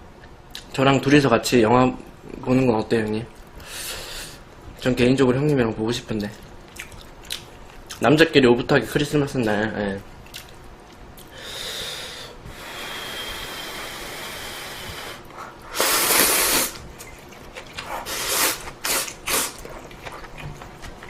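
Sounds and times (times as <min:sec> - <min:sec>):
mouth and breath noises eating: 0:11.2 - 0:21.0
hiss: 0:11.4 - 0:16.8, 0:18.1 - 0:19.6
short bursts of noise: 0:15.8 - 0:16.8.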